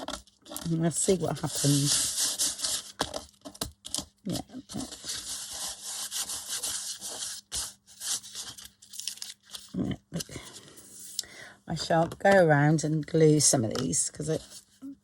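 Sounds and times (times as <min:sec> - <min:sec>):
sandpaper rubbing on paper: 0:01.4 - 0:02.9, 0:04.8 - 0:08.7.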